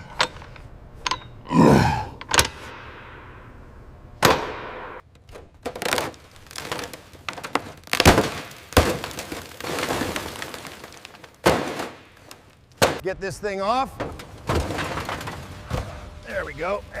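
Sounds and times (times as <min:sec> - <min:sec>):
tools knocking and clanking: 0:00.0 - 0:01.5, 0:02.2 - 0:03.2, 0:04.2 - 0:05.8.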